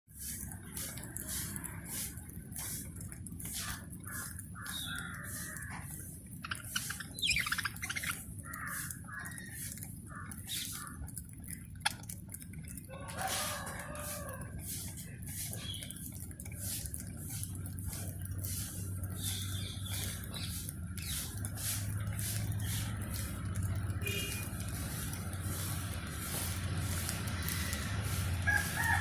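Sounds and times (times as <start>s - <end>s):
sharp ticks and clicks: 0.3s - 29.0s
parrots chattering: 3.6s - 11.0s.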